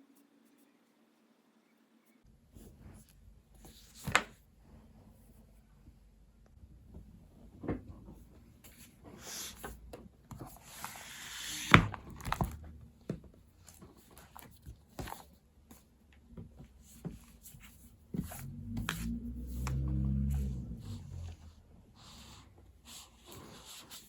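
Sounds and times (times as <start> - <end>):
pens and paper handled: 8.6 - 21.4.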